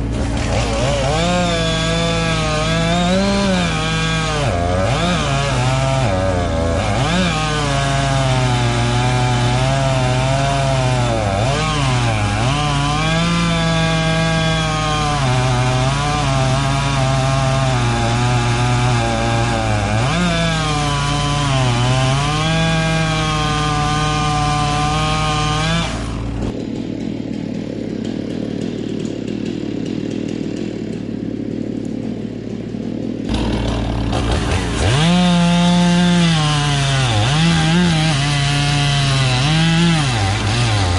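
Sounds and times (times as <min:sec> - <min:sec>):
chainsaw cutting tree: 0:00.0 - 0:40.9.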